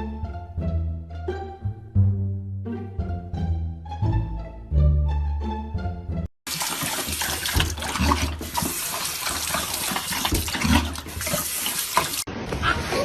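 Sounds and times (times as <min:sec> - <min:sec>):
string music: 0:00.0 - 0:06.3
running water: 0:06.5 - 0:12.3.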